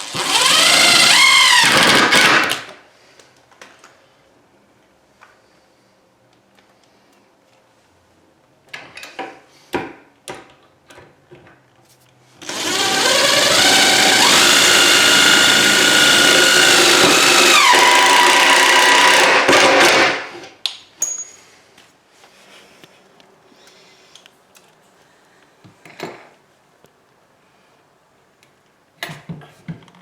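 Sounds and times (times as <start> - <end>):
power drill running: 0.0 - 2.7, 12.4 - 20.3.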